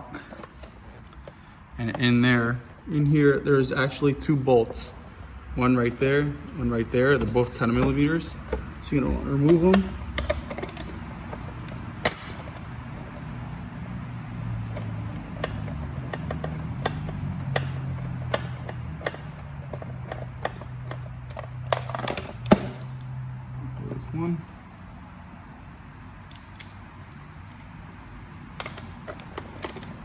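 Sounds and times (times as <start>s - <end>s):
steady low hum: 0.0s - 30.0s
ratchet clicking on metal: 5.6s - 23.2s, 28.5s - 30.0s.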